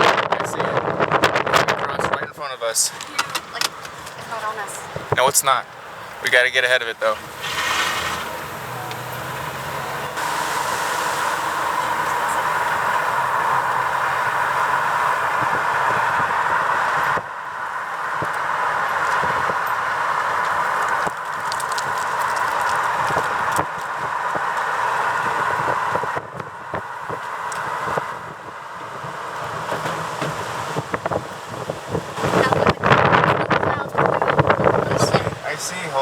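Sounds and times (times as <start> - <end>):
road and wind noise from vehicle: 0.0 - 36.0.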